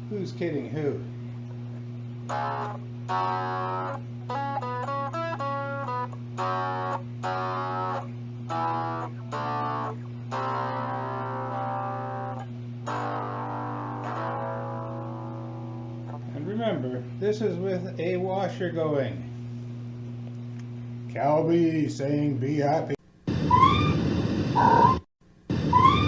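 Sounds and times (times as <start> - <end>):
overdriven electric guitar: 2.2 - 16.3.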